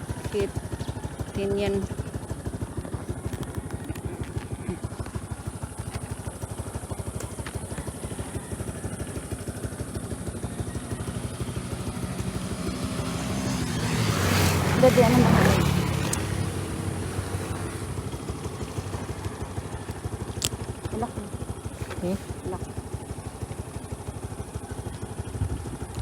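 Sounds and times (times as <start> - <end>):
small motorcycle engine putter: 2.7 - 9.6, 14.9 - 16.6, 20.1 - 22.8.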